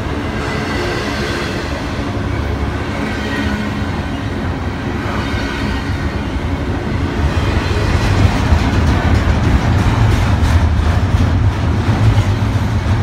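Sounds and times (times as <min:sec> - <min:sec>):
freight train wheels on rails: 0:00.0 - 0:13.0.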